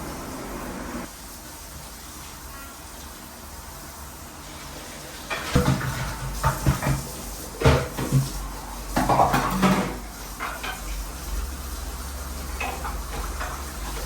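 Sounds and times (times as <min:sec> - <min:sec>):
dishes clinking in sink: 0:05.2 - 0:11.2, 0:12.4 - 0:14.0.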